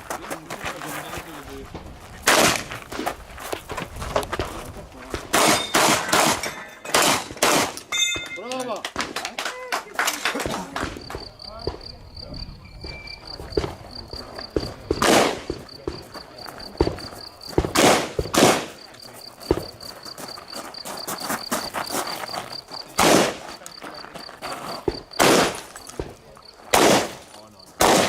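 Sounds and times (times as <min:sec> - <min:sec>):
insects chirping: 0:00.0 - 0:28.0
shotgun shots: 0:02.2 - 0:02.7, 0:05.3 - 0:08.3, 0:14.6 - 0:16.0, 0:17.6 - 0:18.8, 0:23.0 - 0:23.4, 0:25.2 - 0:28.0.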